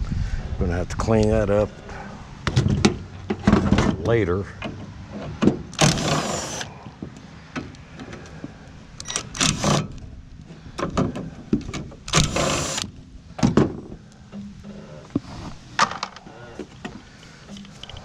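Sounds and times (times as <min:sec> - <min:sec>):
metal clanks and knocks: 0:02.4 - 0:05.7.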